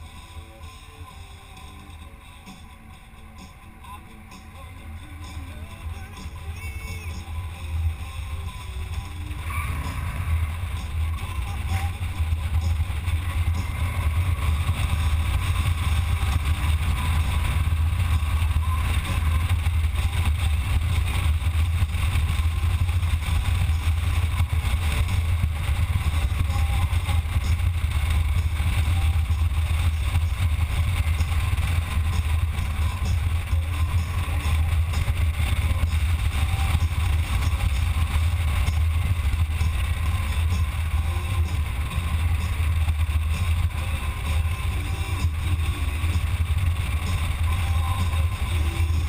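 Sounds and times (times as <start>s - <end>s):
motorcycle engine rumble: 0.0s - 49.0s
rushing wind noise: 5.1s - 49.0s.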